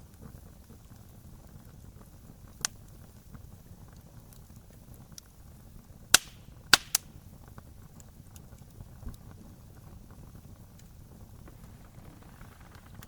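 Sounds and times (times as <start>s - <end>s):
low steady rumble: 0.0s - 13.0s
wood fire crackling: 0.0s - 13.0s
loud sharp pops: 6.1s - 7.2s.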